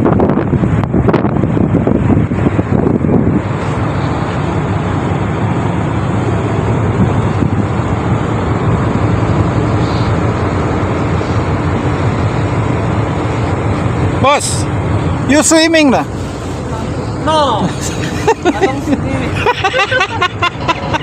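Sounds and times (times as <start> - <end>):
wind noise on microphone: 0.0 - 14.0
ship engine rumbling: 0.0 - 21.0.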